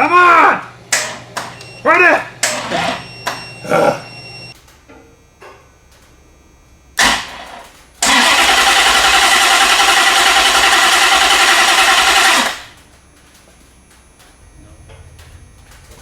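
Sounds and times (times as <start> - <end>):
car engine cranking: 7.0 - 12.9, 14.3 - 16.0.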